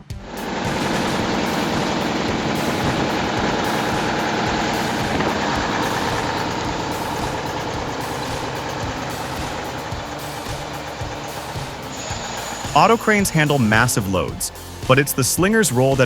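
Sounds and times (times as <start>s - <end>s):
heavy machinery engine running: 0.0s - 16.0s.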